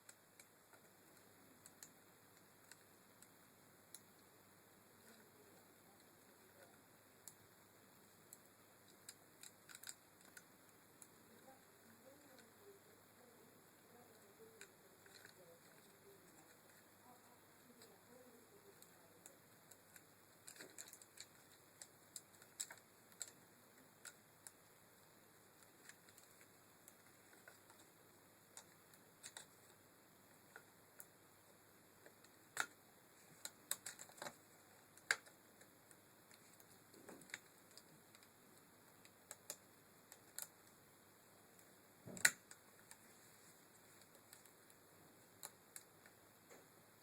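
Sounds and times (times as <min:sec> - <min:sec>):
small parts clicking and tapping: 0:08.2 - 0:12.8, 0:14.0 - 0:38.4.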